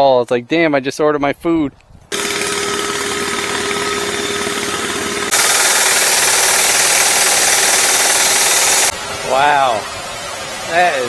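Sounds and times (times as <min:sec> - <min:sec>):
drilling rig engine din: 0:02.1 - 0:09.7
loud hissy rig noise: 0:05.1 - 0:11.0.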